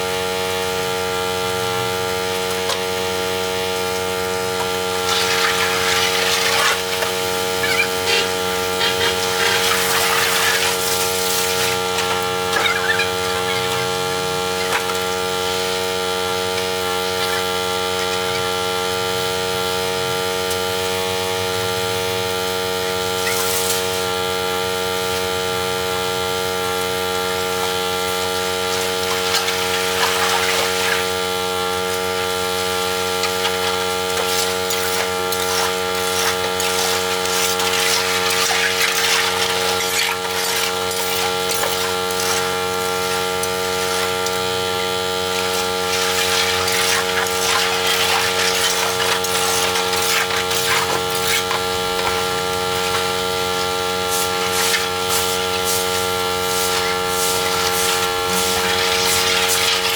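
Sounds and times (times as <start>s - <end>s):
steady motor hum: 0.0s - 59.9s.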